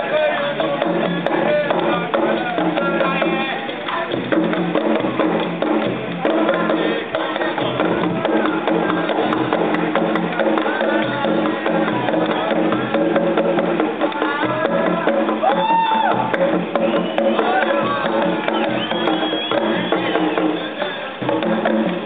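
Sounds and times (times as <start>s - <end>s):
live band music with percussion: 0.0s - 22.0s
voices: 5.6s - 22.0s.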